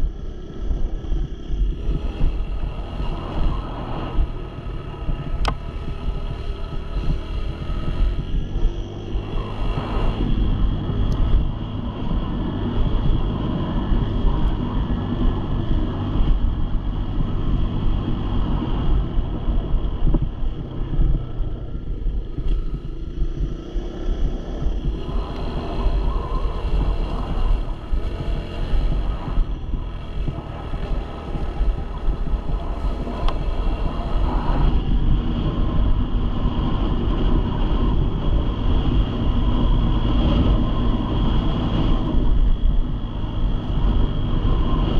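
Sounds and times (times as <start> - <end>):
dirt bike engine running: 0.0 - 44.9
wind buffeting microphone: 0.0 - 44.9.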